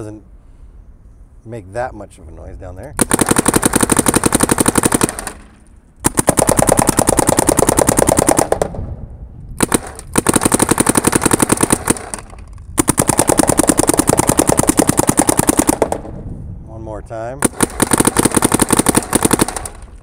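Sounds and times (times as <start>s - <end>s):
paintball marker rapid shots: 3.0s - 8.8s, 9.6s - 16.1s, 17.4s - 20.0s.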